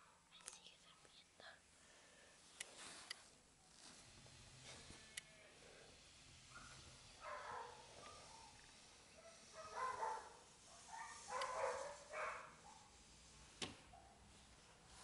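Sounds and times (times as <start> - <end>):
dog barking: 6.5 - 8.6, 9.2 - 12.9.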